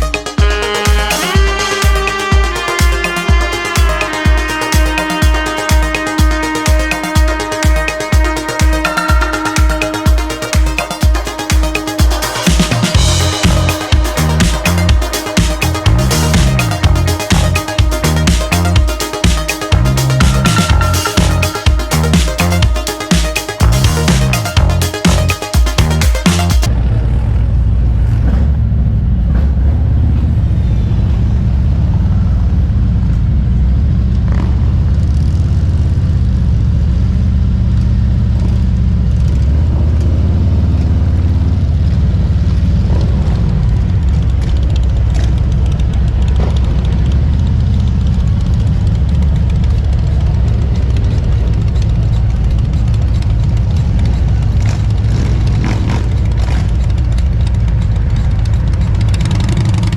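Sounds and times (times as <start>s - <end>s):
motorcycle engine rumbling: 0.0s - 59.9s.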